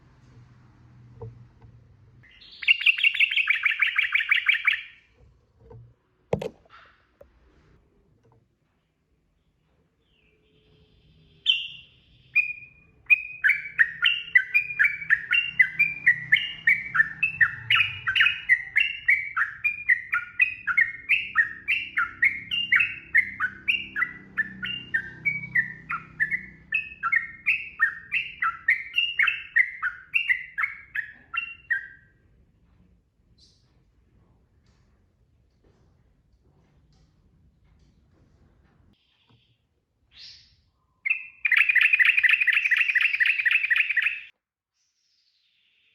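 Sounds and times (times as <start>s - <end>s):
bird singing bubbly notes: 2.2s - 5.0s, 12.4s - 32.0s.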